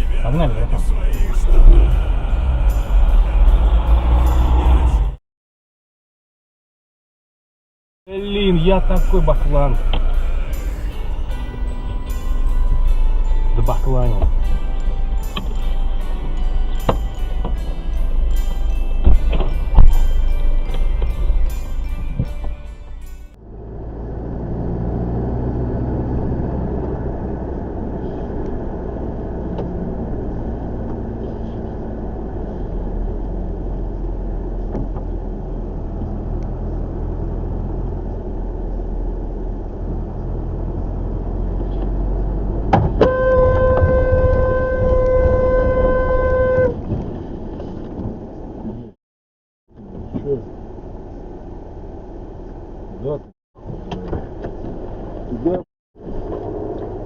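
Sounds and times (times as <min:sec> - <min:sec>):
car engine and road noise: 0:00.0 - 0:05.2, 0:08.1 - 0:49.0, 0:49.7 - 0:57.0
car horn: 0:08.1 - 0:10.6, 0:43.0 - 0:46.8.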